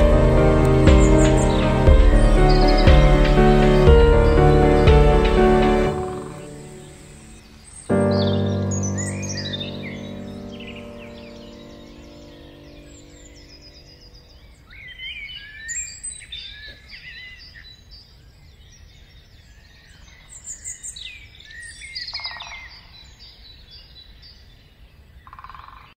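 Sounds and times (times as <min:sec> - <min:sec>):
harsh buzzy bird call: 0:00.0 - 0:13.1
small birds chirping and whistling: 0:00.0 - 0:24.8.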